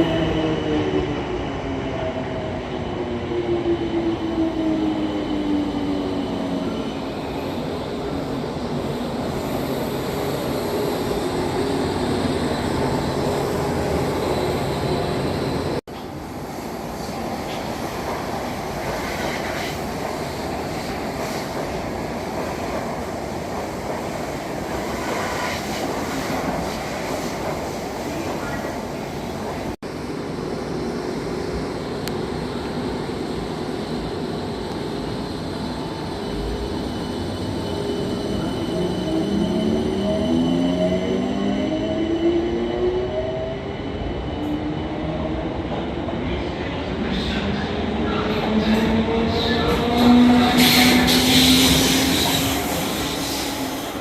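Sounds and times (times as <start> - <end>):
train rumble on rails: 0.0 - 54.0
train whine: 46.9 - 54.0.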